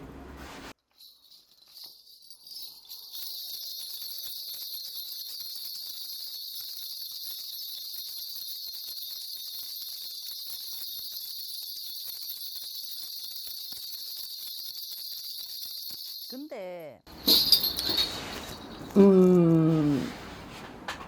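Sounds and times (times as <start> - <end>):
bell rattle jingling: 0.8 - 19.0.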